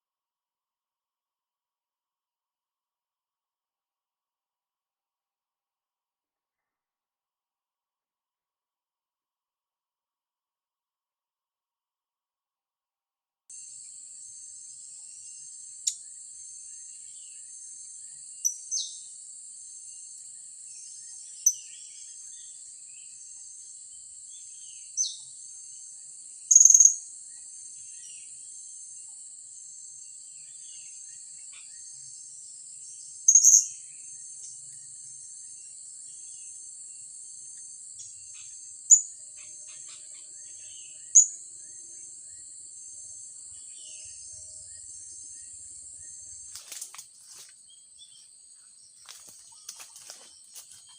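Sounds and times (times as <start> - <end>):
high insect drone: 13.5 - 50.9.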